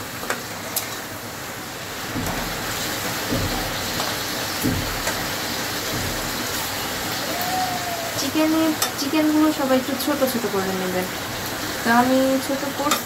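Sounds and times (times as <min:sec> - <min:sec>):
chicken sizzling in oil: 0:00.1 - 0:13.0
dull knocks in pan: 0:02.0 - 0:06.7.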